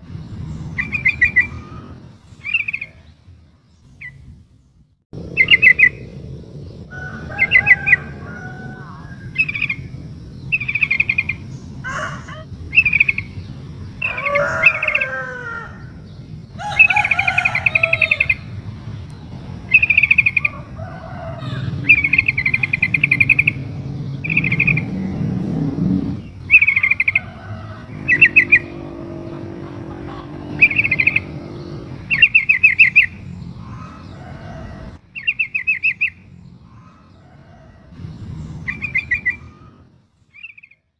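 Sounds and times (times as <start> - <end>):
low steady rumble: 0.0 - 15.0, 15.6 - 35.0
bird chattering calls: 10.5 - 13.4, 19.7 - 20.7, 21.4 - 25.4, 26.0 - 34.2.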